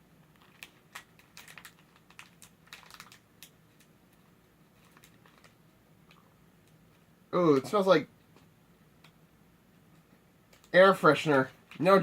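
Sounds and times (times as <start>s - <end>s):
candy package crackling: 0.2s - 4.0s, 4.7s - 6.3s.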